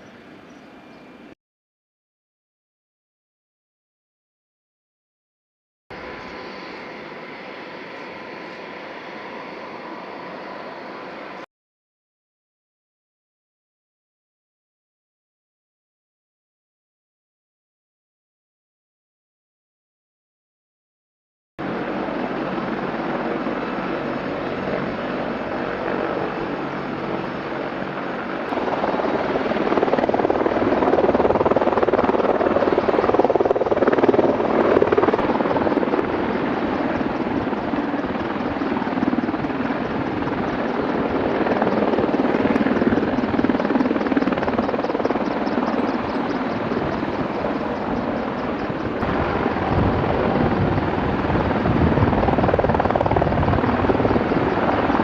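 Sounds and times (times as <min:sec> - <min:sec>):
helicopter rotor and engine: 0:00.0 - 0:01.4, 0:05.9 - 0:11.5, 0:21.6 - 0:55.0.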